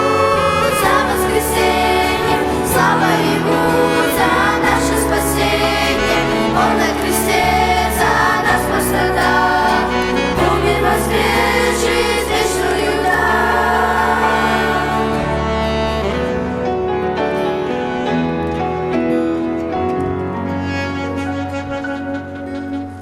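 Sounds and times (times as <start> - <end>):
choir singing a hymn: 0.0 - 16.5
sustained low accompanying notes: 0.0 - 23.0.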